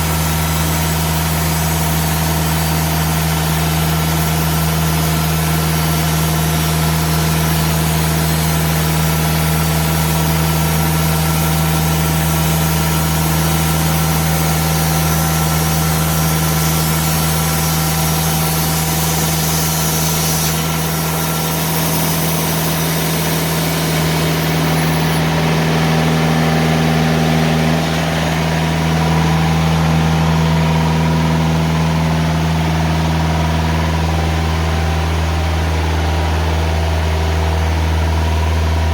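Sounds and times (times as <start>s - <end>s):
engine droning: 0.0s - 38.9s
saw blade hissing through log: 14.7s - 26.1s.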